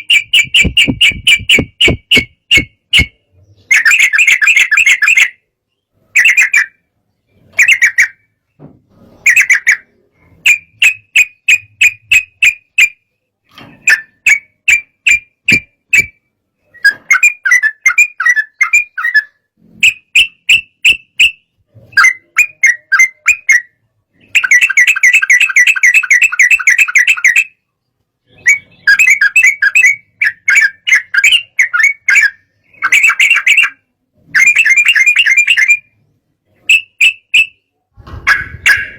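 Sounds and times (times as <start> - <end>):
bird rapid sharp chattering: 0.0 - 5.3, 9.2 - 12.9, 28.4 - 33.8, 38.2 - 38.9.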